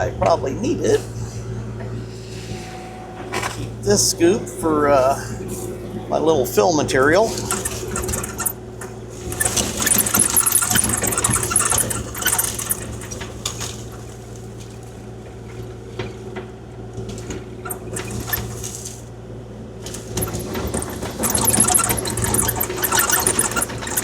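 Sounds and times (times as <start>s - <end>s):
gravel scraping and rattling: 7.0s - 8.6s, 9.2s - 14.9s, 17.6s - 19.0s, 19.9s - 24.0s
excavator diesel engine running: 9.3s - 13.2s, 20.2s - 24.0s.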